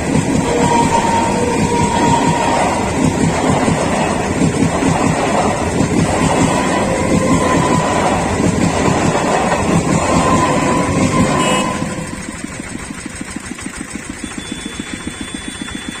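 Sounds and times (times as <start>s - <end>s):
train running past: 0.0s - 16.0s
small engine idling: 11.4s - 16.0s.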